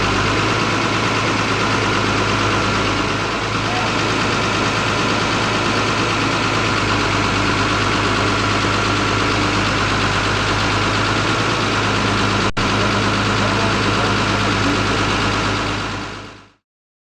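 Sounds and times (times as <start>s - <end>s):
bandsaw sawing a log: 0.0s - 16.0s.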